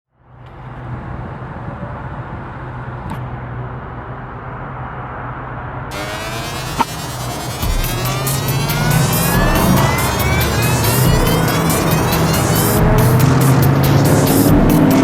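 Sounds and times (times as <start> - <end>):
car engine idling: 5.9 - 15.0.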